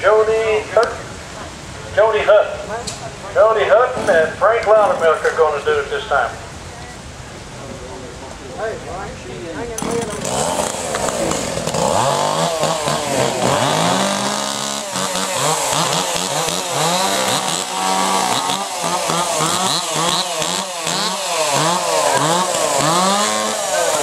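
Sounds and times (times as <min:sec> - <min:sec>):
chainsaws revving: 0:09.6 - 0:24.0.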